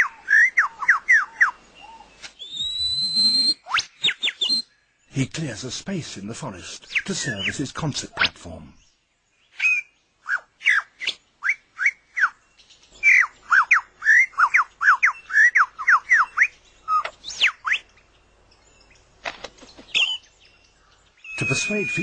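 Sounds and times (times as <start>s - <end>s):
lyrebird whistling: 0.0s - 4.7s, 6.8s - 7.6s, 9.5s - 12.4s, 13.0s - 18.0s, 19.7s - 20.3s, 21.2s - 22.0s.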